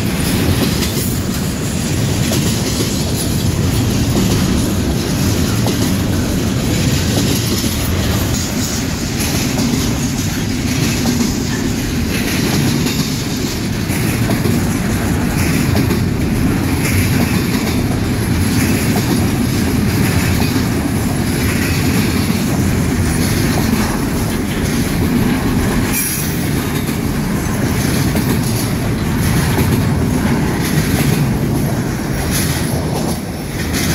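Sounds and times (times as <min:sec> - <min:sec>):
train wheels rumbling on rails: 0:00.0 - 0:33.9.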